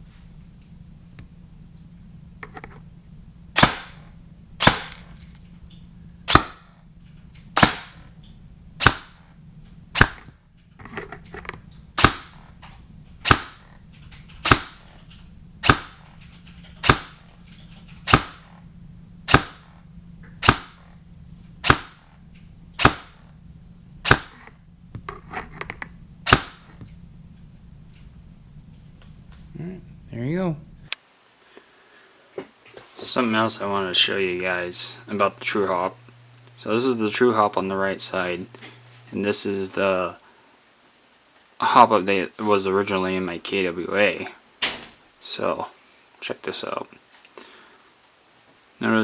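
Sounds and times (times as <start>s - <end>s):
airsoft rifle single shots: 3.6s - 5.0s, 6.3s - 6.7s, 7.6s - 8.0s, 8.8s - 9.2s, 10.0s - 10.2s, 12.0s - 12.4s, 13.2s - 13.7s, 14.4s - 14.8s, 15.6s - 16.0s, 16.8s - 17.2s, 18.1s - 18.6s, 19.3s - 19.8s, 20.4s - 20.9s, 21.6s - 22.1s, 22.8s - 23.2s, 24.0s - 24.4s, 26.2s - 26.7s.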